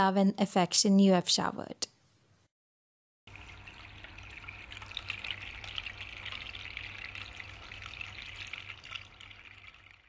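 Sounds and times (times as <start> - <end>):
fountain water trickling and splashing: 3.3 - 10.0.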